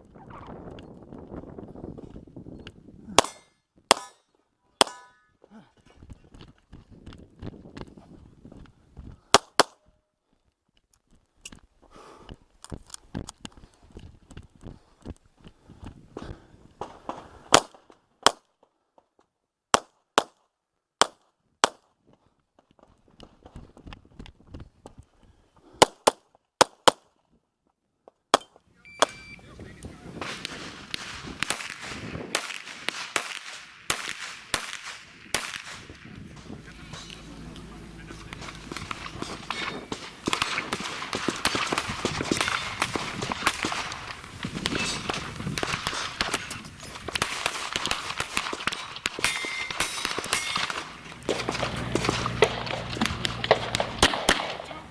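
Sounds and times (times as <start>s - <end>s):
handgun shots: 3.2s - 4.2s, 30.2s - 54.9s.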